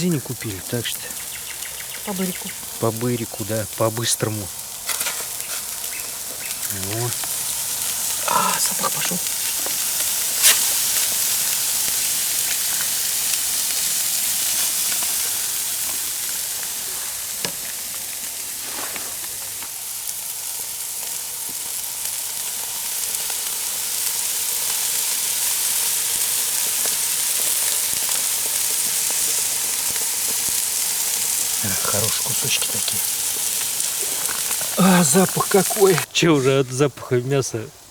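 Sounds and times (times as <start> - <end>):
meat sizzling on a grill: 0.0 - 37.9.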